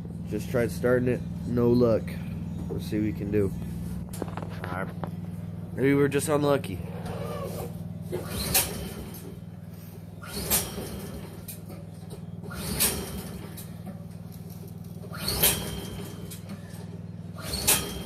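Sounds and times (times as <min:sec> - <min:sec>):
steady low hum: 0:00.0 - 0:18.0
engine recoil starter pulls: 0:06.8 - 0:18.0.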